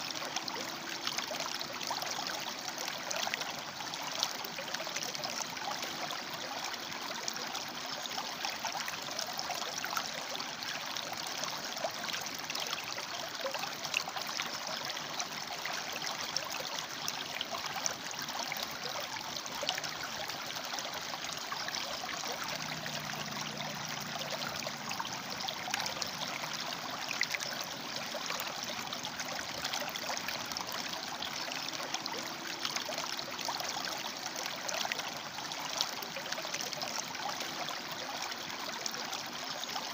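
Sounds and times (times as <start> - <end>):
faint low hum: 19.5 - 35.5
river water rushing over rocks: 21.1 - 36.2.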